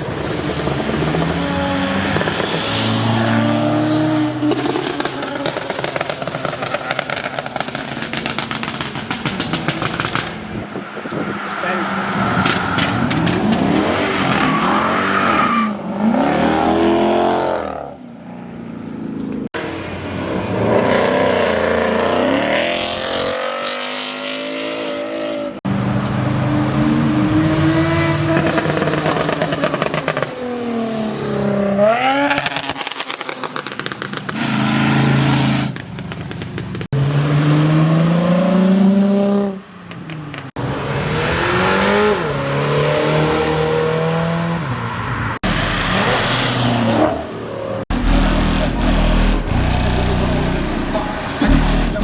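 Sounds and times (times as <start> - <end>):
car engines revving and accelerating: 0.0 - 52.0.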